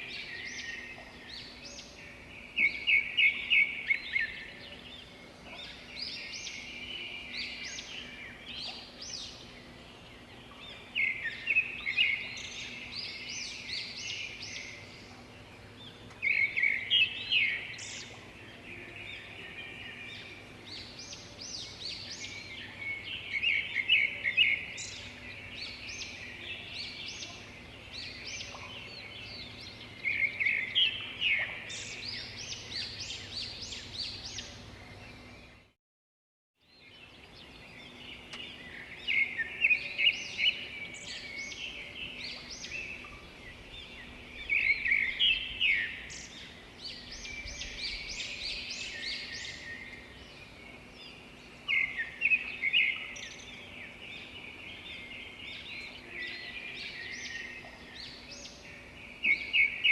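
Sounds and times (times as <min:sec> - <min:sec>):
songbird singing: 0:00.0 - 0:35.8, 0:36.6 - 0:59.9.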